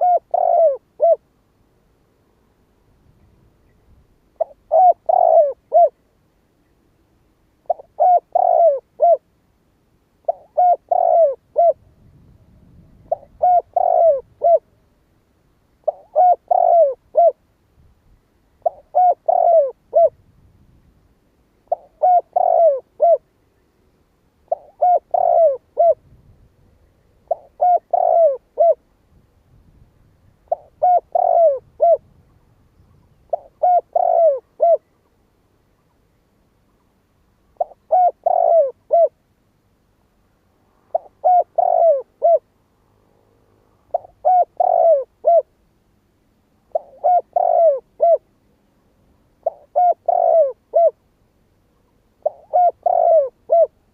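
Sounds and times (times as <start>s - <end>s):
dove cooing: 0.0s - 1.3s, 4.4s - 6.0s, 7.6s - 9.3s, 10.2s - 12.0s, 12.8s - 14.8s, 15.8s - 17.4s, 18.6s - 20.2s, 21.6s - 23.3s, 24.5s - 26.2s, 27.2s - 28.9s, 30.4s - 32.2s, 32.9s - 34.9s, 37.5s - 39.2s, 40.9s - 42.5s, 43.8s - 45.5s, 46.7s - 48.3s, 49.4s - 51.0s, 52.1s - 53.9s.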